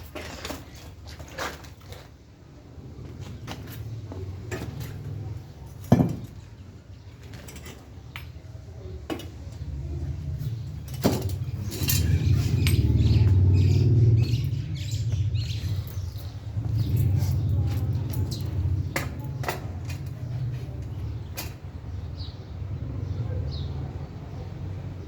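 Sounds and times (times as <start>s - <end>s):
metal bicycle parts clinking: 7.1s - 9.7s, 10.5s - 21.7s.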